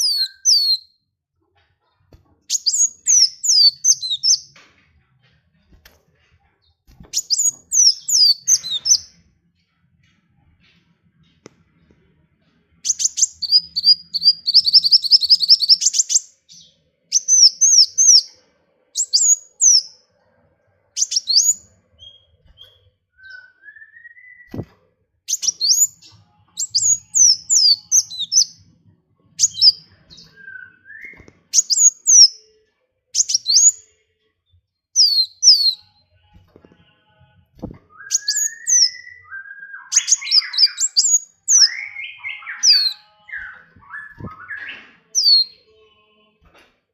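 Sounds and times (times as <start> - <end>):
songbird chirping: 0.0 - 1.0, 2.1 - 12.0, 12.7 - 32.6, 33.2 - 37.0, 37.6 - 46.2.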